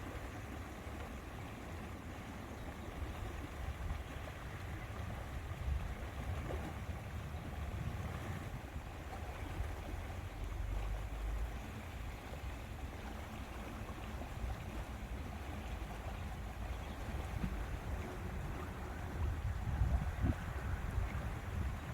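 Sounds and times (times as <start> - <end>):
lake water washing: 0.0 - 21.9
wind buffeting microphone: 3.1 - 10.7, 14.4 - 21.9.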